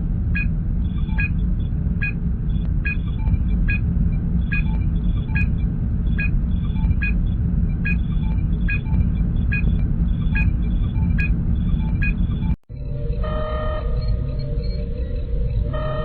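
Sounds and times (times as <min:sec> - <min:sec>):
deep engine rumble: 0:00.0 - 0:16.0
short electronic beep: 0:00.4 - 0:01.3.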